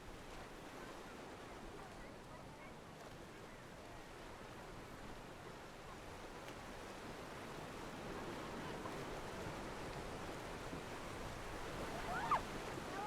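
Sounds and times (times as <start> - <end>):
sea surf: 8.0 - 13.0.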